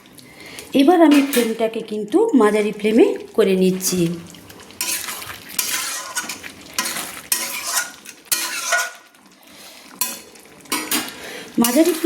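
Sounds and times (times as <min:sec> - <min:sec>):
food frying: 0:00.0 - 0:12.0
spatula scraping a pan: 0:04.6 - 0:09.2, 0:09.9 - 0:12.0.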